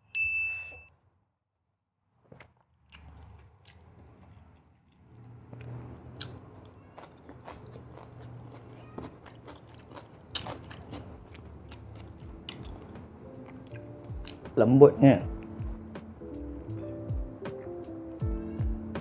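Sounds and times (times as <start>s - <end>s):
close chewing with crunches: 2.9s - 14.5s.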